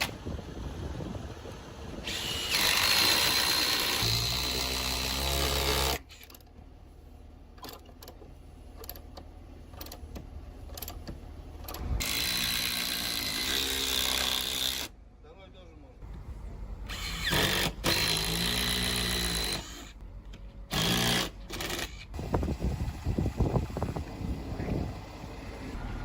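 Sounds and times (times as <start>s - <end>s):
power tool whining: 2.0s - 6.3s, 12.0s - 14.9s, 16.9s - 20.0s, 20.7s - 22.7s.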